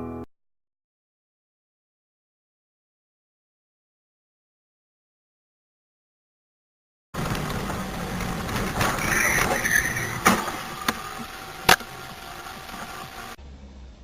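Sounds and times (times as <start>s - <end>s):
vehicle road noise: 7.2s - 14.0s.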